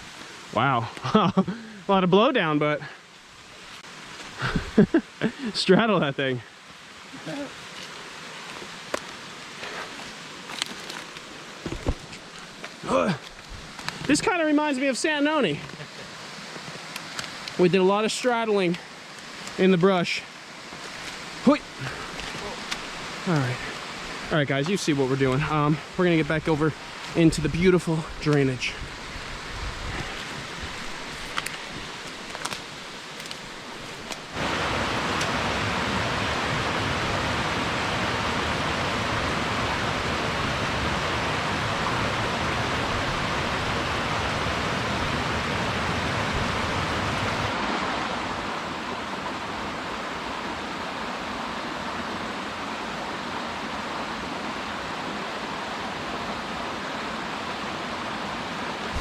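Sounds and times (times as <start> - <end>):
mountain stream rushing over rocks: 0.0 - 59.0
brush snapping: 22.1 - 22.9, 31.0 - 34.3.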